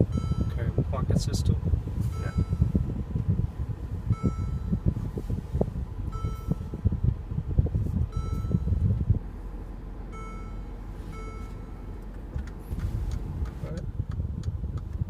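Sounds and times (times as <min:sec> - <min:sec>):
car interior chime: 0:00.0 - 0:01.0, 0:02.0 - 0:07.2, 0:08.1 - 0:09.1, 0:10.1 - 0:12.5
low cabin rumble: 0:00.0 - 0:15.0.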